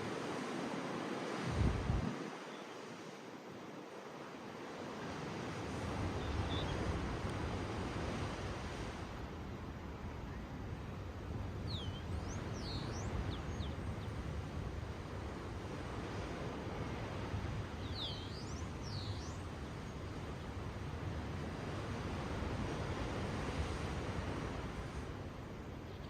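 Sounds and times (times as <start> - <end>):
ocean waves washing on shore: 0.0 - 26.0
bird chirps: 11.7 - 13.8.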